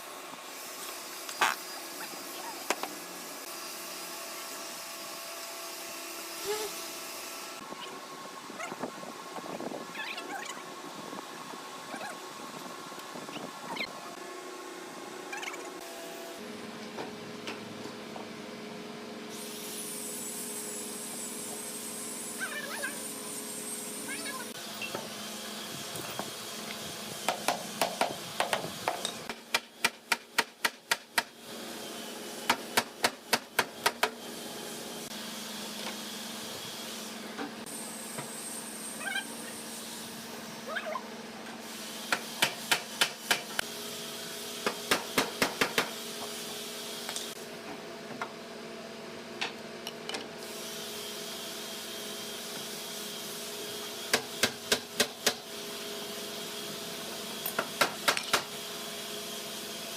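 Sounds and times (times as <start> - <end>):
rapid sharp strikes on wood: 27.3 - 31.3, 42.1 - 43.6, 44.6 - 46.0, 57.6 - 58.5.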